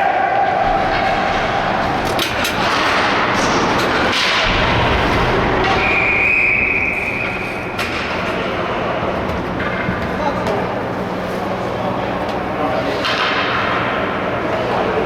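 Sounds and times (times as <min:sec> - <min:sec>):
whistle blown: 0:05.8 - 0:07.7.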